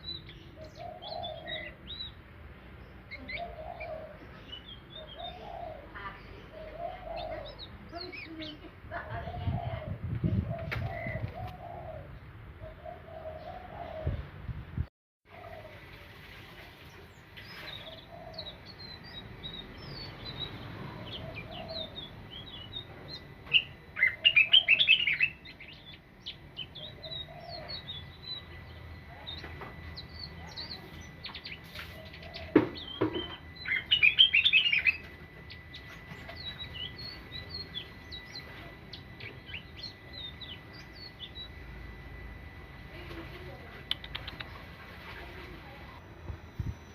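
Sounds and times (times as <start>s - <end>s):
bird singing high chirps: 0.0s - 2.2s, 17.1s - 42.2s
dove cooing softly: 0.6s - 1.8s, 3.2s - 7.7s, 9.0s - 14.4s, 15.3s - 16.3s, 20.8s - 22.0s, 26.8s - 27.8s
bird rapid twittering: 43.8s - 44.8s.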